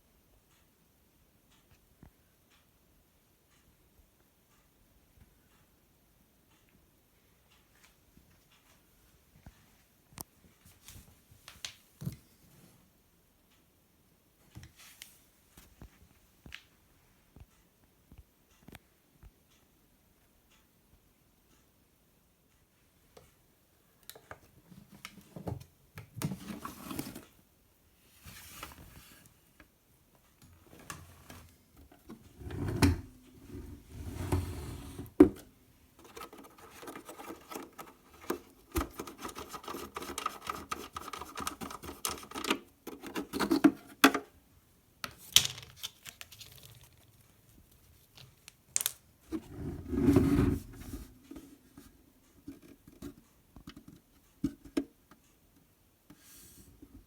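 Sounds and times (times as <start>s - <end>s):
handling clicks knocks and rubbing: 35.1s - 44.3s.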